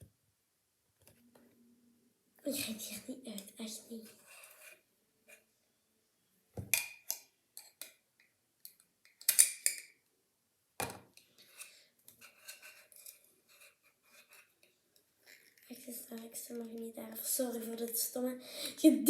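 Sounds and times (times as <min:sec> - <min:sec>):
scissors clacking against a pot: 0:08.7 - 0:09.9.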